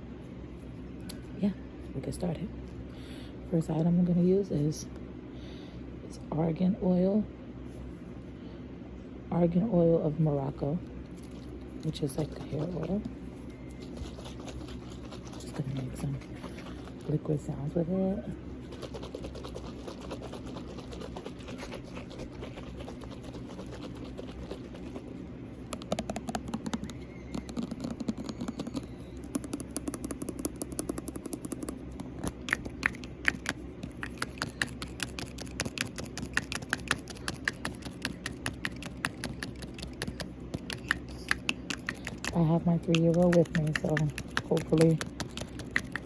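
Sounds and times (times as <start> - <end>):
room fan humming: 0.0 - 46.0
oil bottle shaken: 11.2 - 17.5, 18.6 - 46.0.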